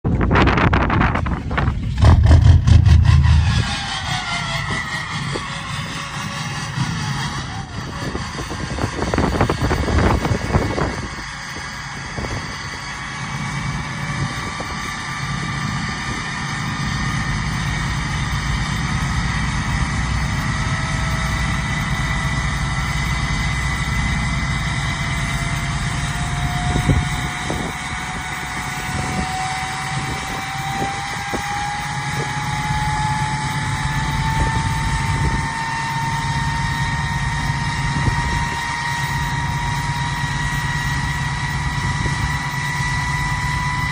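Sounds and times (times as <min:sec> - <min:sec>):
diesel engine idling: 0:00.1 - 0:43.9
turbo whistle: 0:01.9 - 0:08.4.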